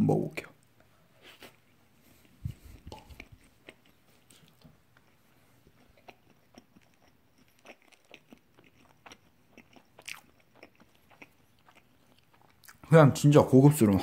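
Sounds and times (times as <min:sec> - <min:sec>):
faint chewing mouth clicks: 0:01.4 - 0:12.8.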